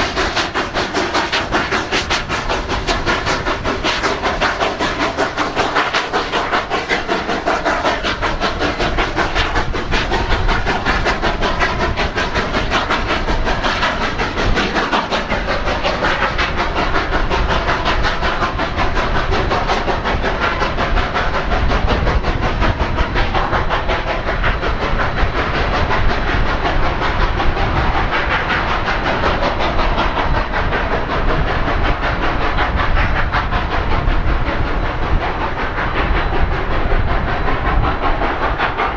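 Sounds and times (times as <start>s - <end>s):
steam locomotive running: 0.0s - 38.9s.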